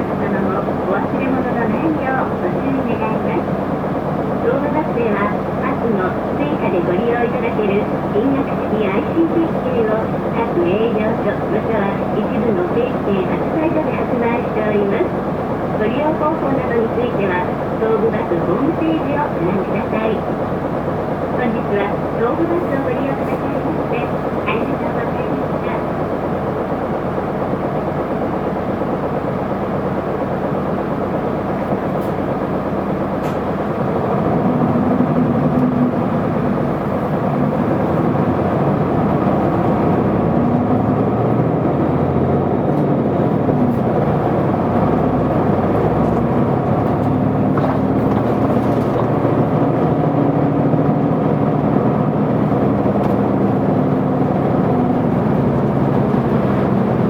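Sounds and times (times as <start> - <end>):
bus diesel engine: 0.0 - 57.0.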